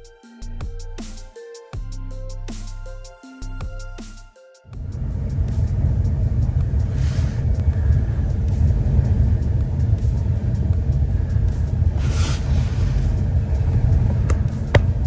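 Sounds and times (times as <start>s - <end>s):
vehicle road rumble: 4.8s - 15.0s.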